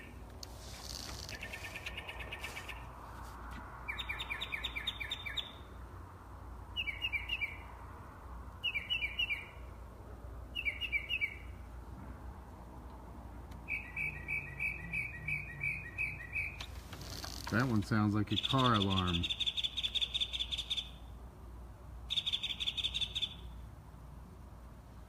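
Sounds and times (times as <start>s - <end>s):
bird chirping: 1.1s - 2.9s, 3.9s - 5.8s, 6.7s - 7.8s, 8.6s - 9.7s, 10.5s - 11.6s, 13.6s - 21.1s, 22.1s - 23.6s.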